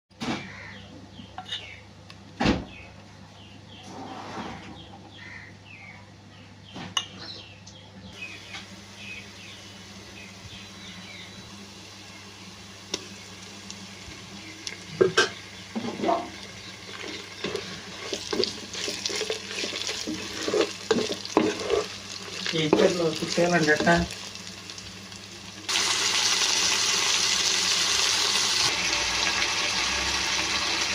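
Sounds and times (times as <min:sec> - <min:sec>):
pots and utensils clinking: 0:14.9 - 0:24.1.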